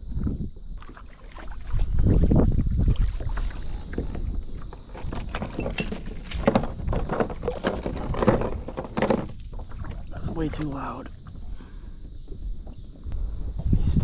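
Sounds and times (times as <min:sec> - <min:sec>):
paddle splashes: 0:00.8 - 0:05.2, 0:08.6 - 0:10.7
knocks against hull: 0:03.9 - 0:10.4.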